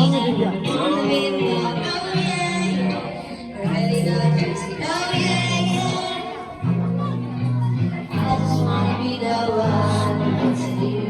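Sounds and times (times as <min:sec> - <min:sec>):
person singing: 0:00.0 - 0:11.0.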